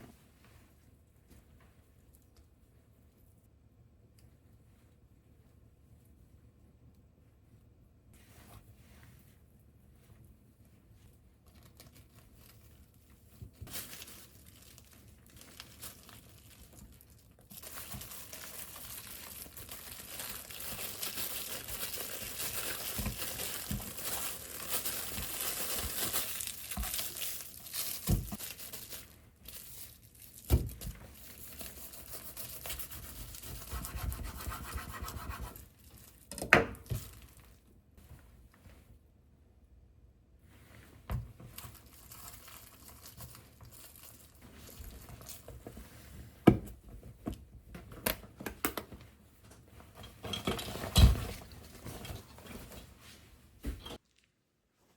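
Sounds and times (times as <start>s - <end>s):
packaging crinkling: 13.6s - 33.6s, 41.5s - 45.5s.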